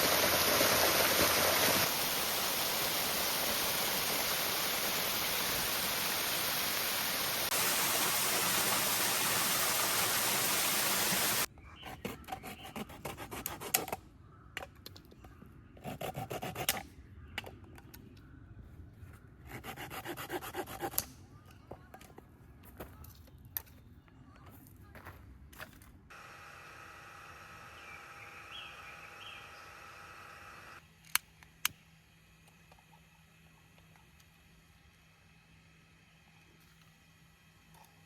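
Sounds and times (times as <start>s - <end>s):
rushing hiss: 0.0s - 11.5s.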